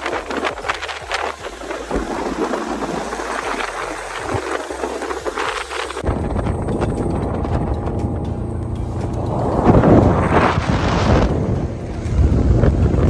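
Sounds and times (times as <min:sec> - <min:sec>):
water spray hissing: 0:00.0 - 0:06.1
motorboat running at speed: 0:00.0 - 0:13.0
wind buffeting microphone: 0:00.0 - 0:13.0.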